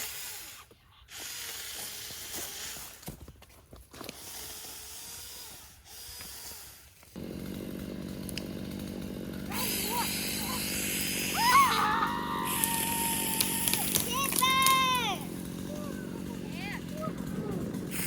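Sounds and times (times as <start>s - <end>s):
outdoor noise: 0.0s - 18.0s
small petrol engine running: 4.1s - 18.0s.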